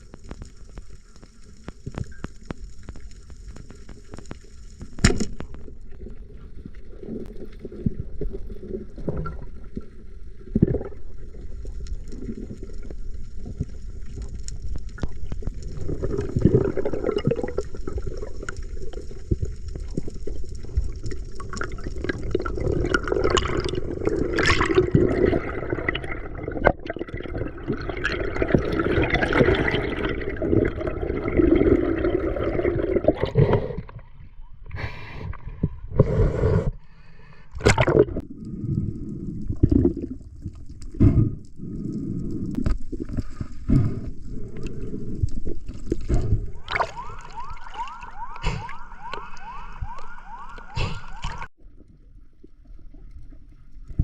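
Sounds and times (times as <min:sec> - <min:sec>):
water sloshing and lapping: 0:42.6 - 0:54.0.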